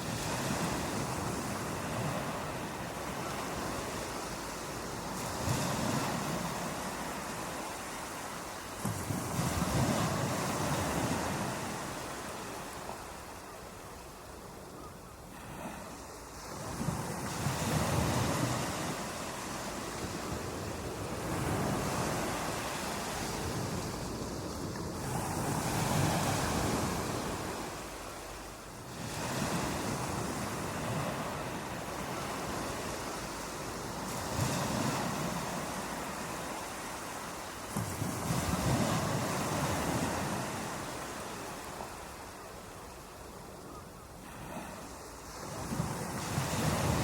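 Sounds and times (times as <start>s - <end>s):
ocean surf breaking: 15.4s - 42.2s.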